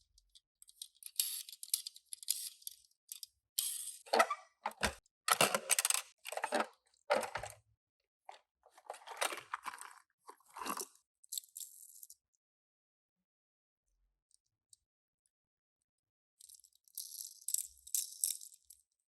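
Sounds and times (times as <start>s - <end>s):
packaging crinkling and rustling: 8.8s - 10.8s.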